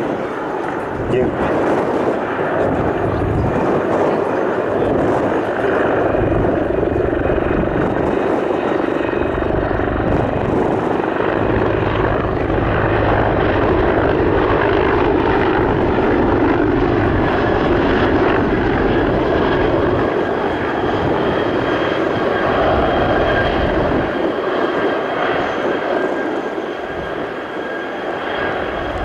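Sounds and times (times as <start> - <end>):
helicopter rotor and engine: 0.0 - 29.0.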